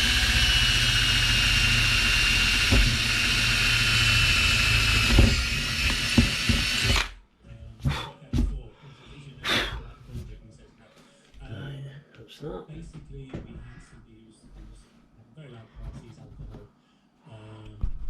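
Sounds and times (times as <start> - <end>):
power drill whining: 0.0 - 7.2.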